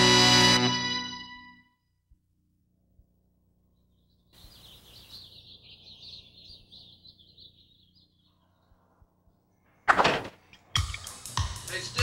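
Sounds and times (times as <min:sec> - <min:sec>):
faint high bird chirping: 0:03.5 - 0:09.8.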